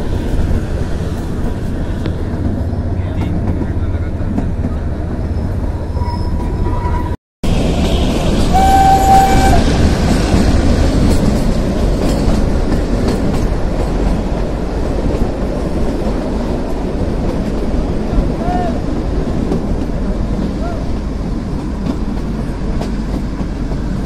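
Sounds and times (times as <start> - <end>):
train coaches rumbling on track: 0.0 - 24.0
train horn: 8.5 - 9.7.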